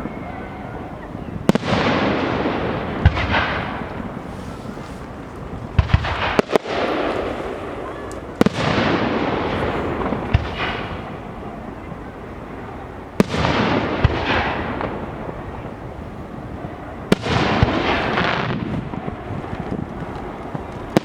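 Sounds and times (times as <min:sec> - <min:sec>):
firework shells bursting: 0:01.5 - 0:11.2
small firework pops: 0:03.0 - 0:11.1, 0:17.1 - 0:21.0.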